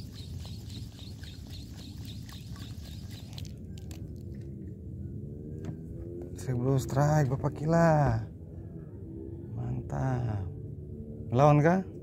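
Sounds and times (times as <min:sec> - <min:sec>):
bird chirping: 0:00.0 - 0:03.8
steady low rumble: 0:00.0 - 0:11.0.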